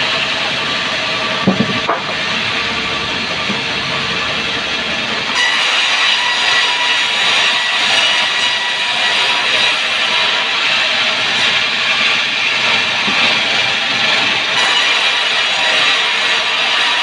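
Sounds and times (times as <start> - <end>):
sawmill saw cutting log: 0.0 - 17.0.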